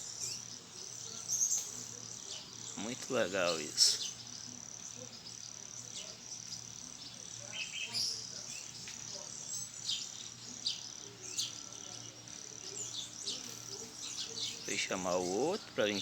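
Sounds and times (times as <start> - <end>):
birds chirping: 0.0 - 16.0
insects trilling: 0.0 - 16.0.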